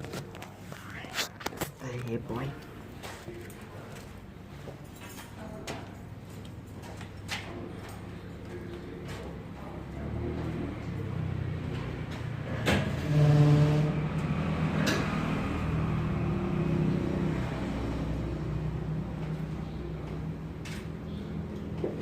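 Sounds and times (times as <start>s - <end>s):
motor vehicle humming: 7.7s - 22.0s.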